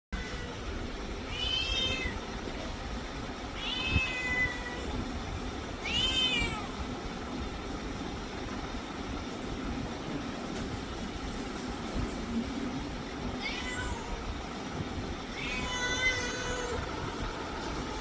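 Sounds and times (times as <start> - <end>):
cat meowing: 0.2 - 2.3, 3.5 - 5.0, 5.8 - 6.8, 13.4 - 14.3, 15.3 - 18.0
steady background hum: 0.2 - 18.0.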